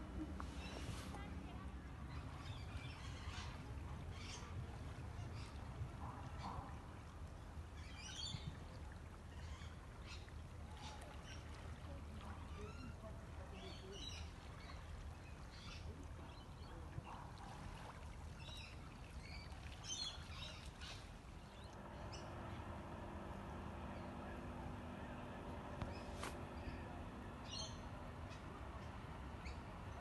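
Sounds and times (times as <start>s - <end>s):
low steady rumble: 0.0s - 30.0s
steady hum: 21.6s - 29.8s
birds chirping: 23.8s - 30.0s.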